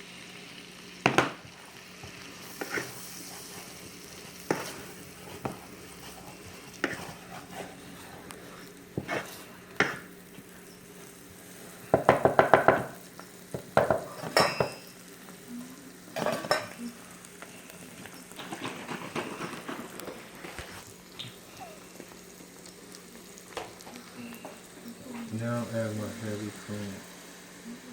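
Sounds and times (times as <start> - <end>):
soft sizzle: 0.0 - 27.9
utensil stirring and scraping pan: 1.1 - 14.9, 18.0 - 20.8.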